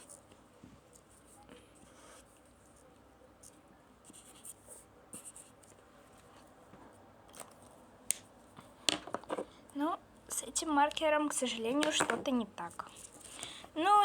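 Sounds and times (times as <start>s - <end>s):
marker scratching on paper: 3.4s - 5.8s.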